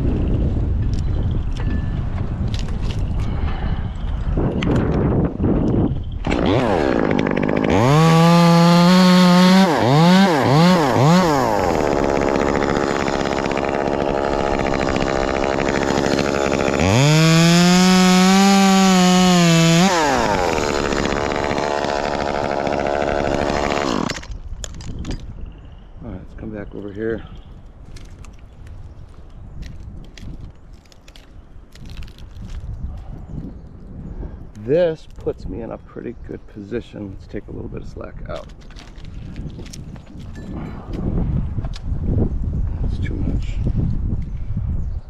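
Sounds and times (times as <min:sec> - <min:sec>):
chainsaw revving: 0:06.2 - 0:24.3.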